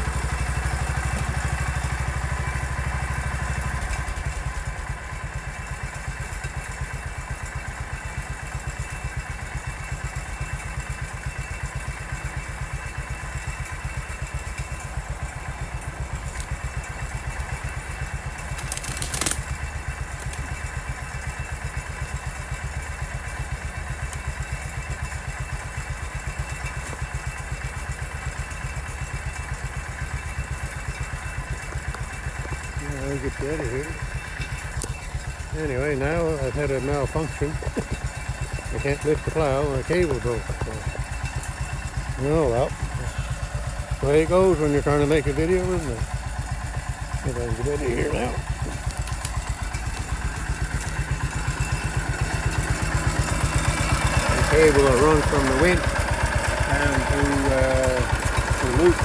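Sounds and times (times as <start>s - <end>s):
tractor engine chugging: 0.0s - 59.0s.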